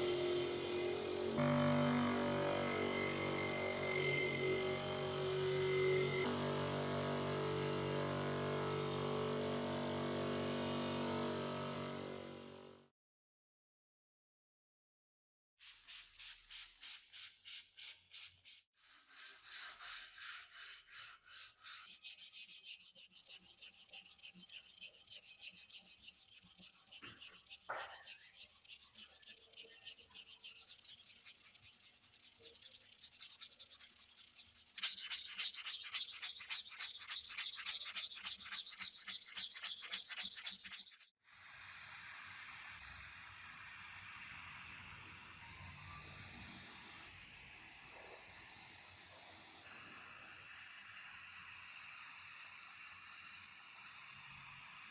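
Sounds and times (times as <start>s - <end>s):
abrasive rubbing on metal: 19.4s - 41.1s.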